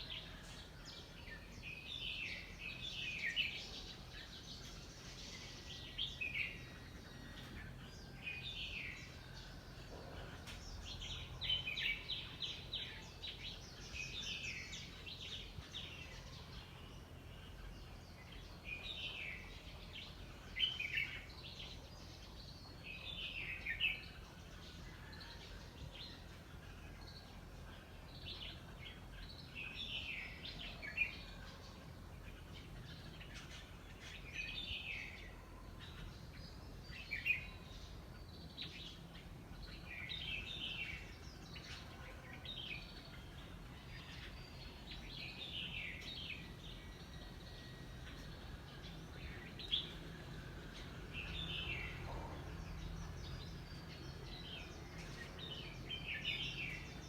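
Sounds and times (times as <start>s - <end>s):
birds singing: 0.0s - 57.0s
low background hum: 0.0s - 57.0s.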